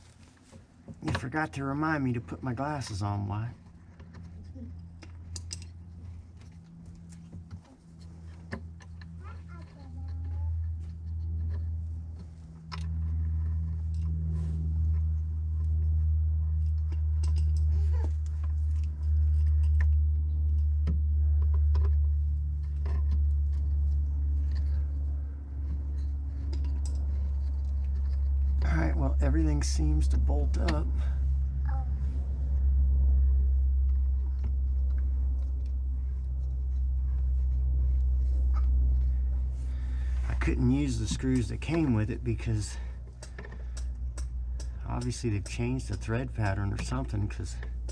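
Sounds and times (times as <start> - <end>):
low steady hum: 0.0 - 47.9
low rumble: 9.8 - 47.9
metal hardware clicks and taps: 43.0 - 47.9.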